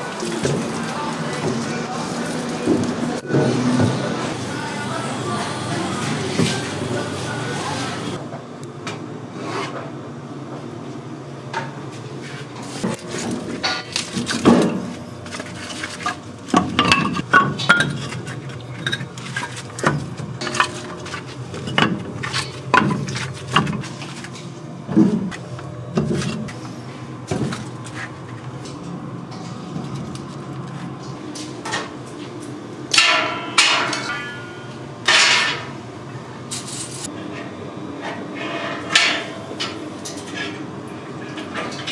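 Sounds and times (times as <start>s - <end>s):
steady low hum: 0.0s - 8.7s
utensils and dishes clinking: 12.8s - 26.8s, 32.9s - 35.8s, 36.5s - 41.9s.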